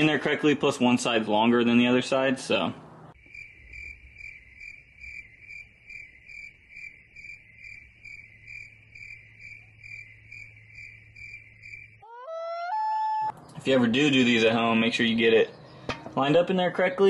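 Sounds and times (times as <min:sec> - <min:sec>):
crickets chirping: 0:03.2 - 0:12.1.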